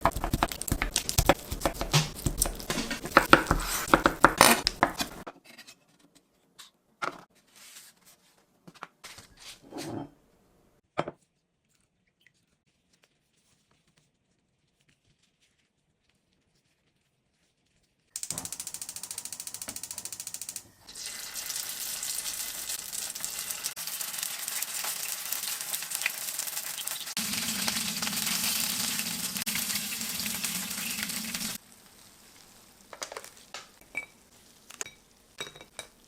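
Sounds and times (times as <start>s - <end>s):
crackling and rustling: 31.5s - 35.4s.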